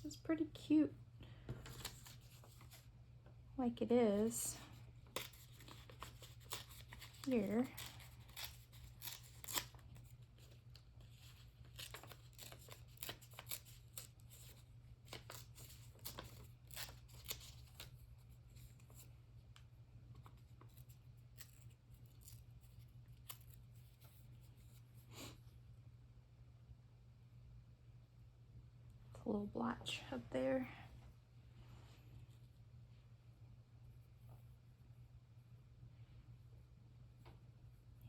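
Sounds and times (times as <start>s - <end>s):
low steady hum: 0.0s - 38.0s
paper rustling: 1.5s - 2.9s, 5.0s - 19.1s.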